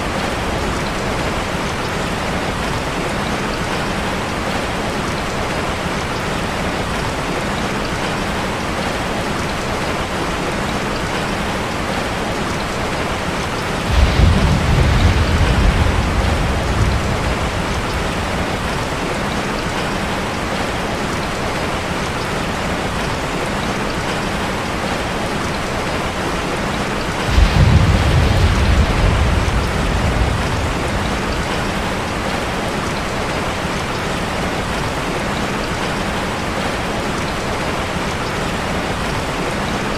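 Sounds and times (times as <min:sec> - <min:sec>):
rain on a metal roof: 0:00.0 - 0:39.9
thunder rumbling: 0:13.5 - 0:20.6, 0:27.0 - 0:33.6.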